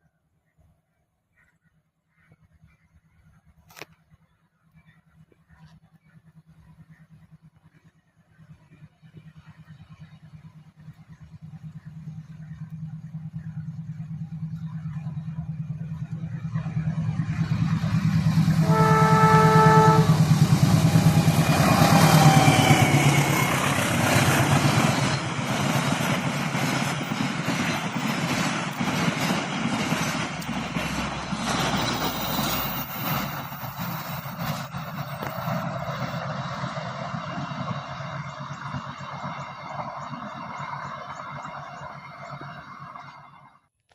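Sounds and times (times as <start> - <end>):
diesel locomotive engine drone: 0.0 - 43.8
wheels on rails: 3.3 - 43.9
wheels clacking over rail joints: 12.0 - 43.3
train horn: 18.3 - 23.6.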